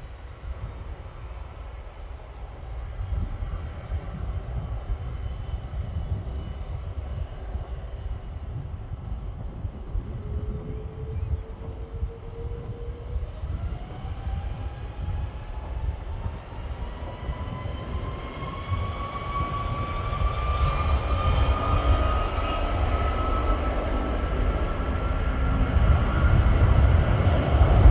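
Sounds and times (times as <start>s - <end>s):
jet engines whining: 0.0s - 27.9s
wind rumbling on microphone: 0.0s - 27.9s.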